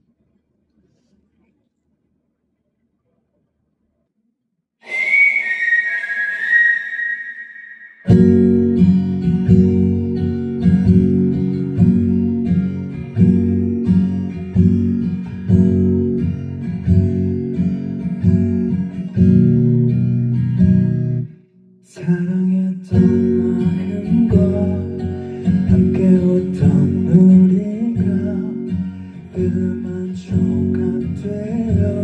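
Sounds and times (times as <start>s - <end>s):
acoustic guitar chords: 7.0s - 32.0s.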